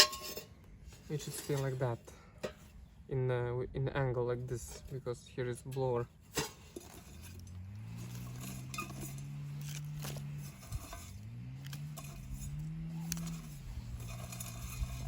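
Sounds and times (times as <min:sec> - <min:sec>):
grass cutter engine running: 0:07.4 - 0:15.0.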